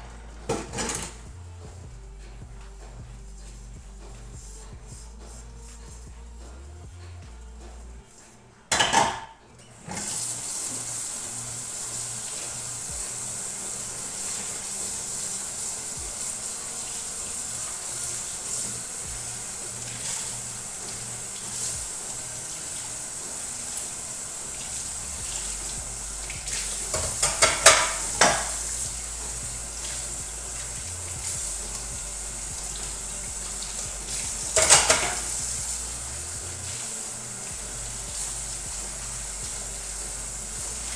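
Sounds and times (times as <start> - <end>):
dishes and pans clattering: 0.5 - 1.3, 8.7 - 10.3, 26.5 - 28.8, 34.4 - 35.4
steady hiss: 9.9 - 40.9.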